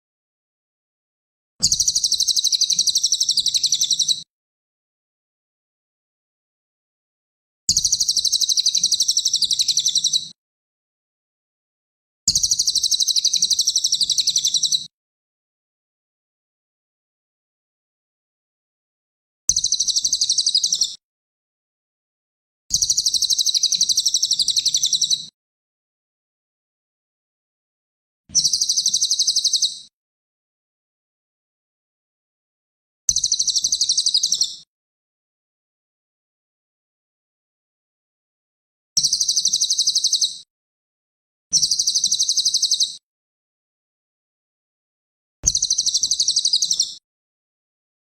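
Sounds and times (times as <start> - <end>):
songbird trilling: 1.7 - 4.2, 7.9 - 10.2, 12.5 - 14.8, 22.9 - 25.2, 28.4 - 29.8, 33.2 - 34.6, 39.0 - 40.4, 41.6 - 43.0, 45.5 - 47.0.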